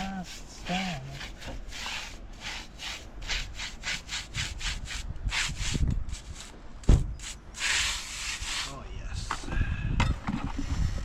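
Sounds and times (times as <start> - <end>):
rapid scraping strokes: 0.0 - 6.6, 7.2 - 8.8
low thuds: 6.8 - 7.2.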